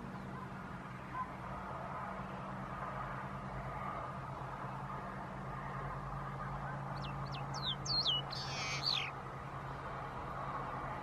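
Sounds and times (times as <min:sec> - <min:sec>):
bird whistled calls: 0:07.0 - 0:09.1
rough bird call: 0:07.0 - 0:09.2.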